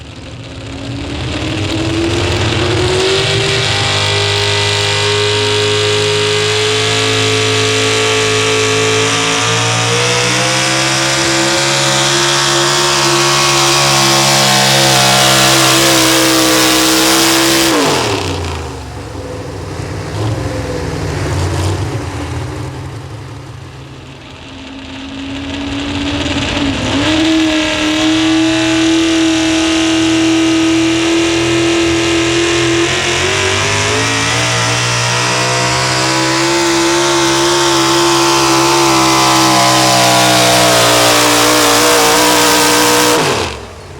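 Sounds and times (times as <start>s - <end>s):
diesel truck engine at full throttle: 0.0s - 43.9s.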